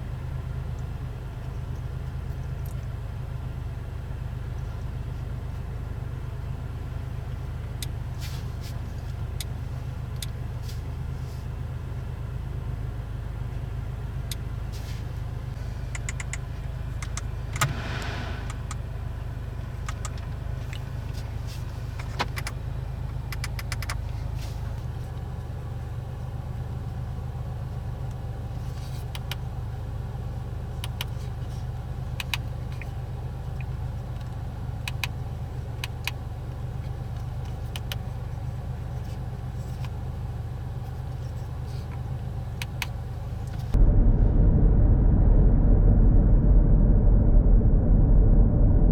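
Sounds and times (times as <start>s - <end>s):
car engine rumbling: 0.0s - 48.9s
small clicks: 15.9s - 16.4s.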